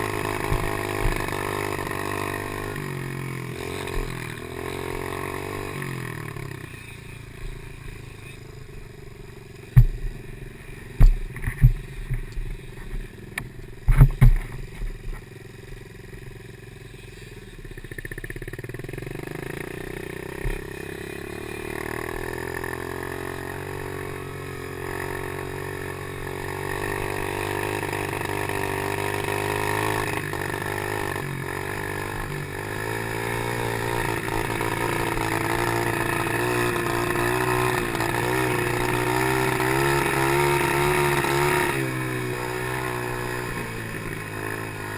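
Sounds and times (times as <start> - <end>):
motocross bike engine revving: 0.0 - 44.9
sharp knocks: 11.0 - 12.3.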